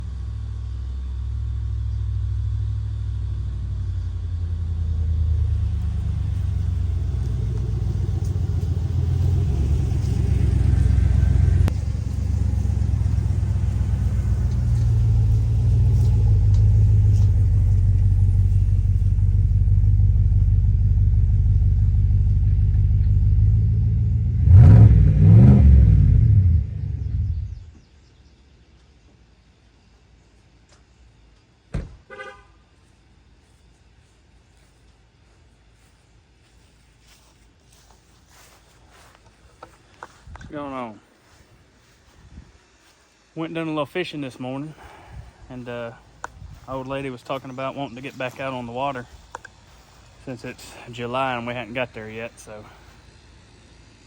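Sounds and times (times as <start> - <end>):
engine rumbling and revving: 0.0 - 27.7, 44.7 - 54.0.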